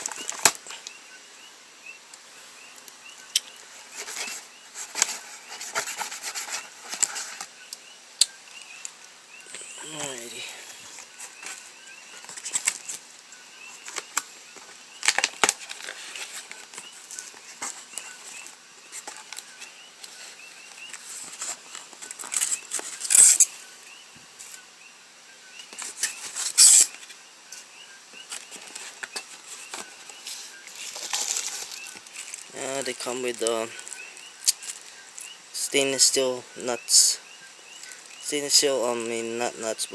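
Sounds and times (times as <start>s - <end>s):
packaging crinkling: 0.0s - 0.9s, 10.0s - 23.5s, 28.3s - 35.4s, 37.5s - 38.3s.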